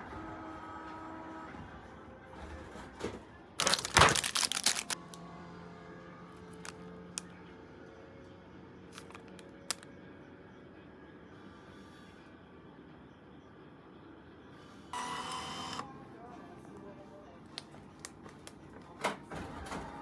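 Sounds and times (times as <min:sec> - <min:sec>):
crinkling and crackling: 0:03.6 - 0:05.0, 0:06.4 - 0:07.3, 0:08.9 - 0:09.8.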